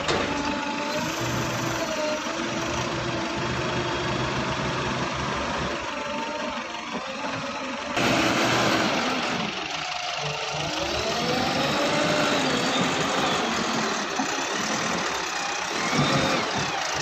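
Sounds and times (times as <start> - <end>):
diesel engine revving: 0.0 - 17.0.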